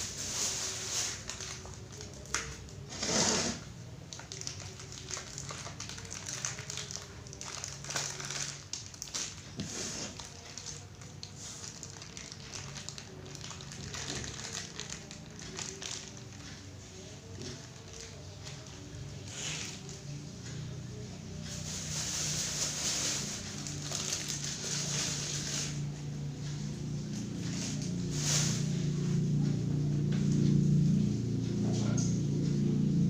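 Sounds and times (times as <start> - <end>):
food and packaging crinkling: 0.0 - 3.0, 4.1 - 20.1, 21.4 - 25.9.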